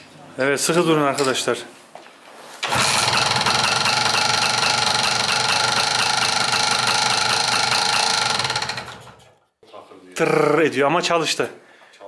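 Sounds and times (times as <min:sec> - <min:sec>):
two-stroke motorcycle engine running: 0:02.6 - 0:09.2
motorcycle kick-start: 0:02.6 - 0:09.4.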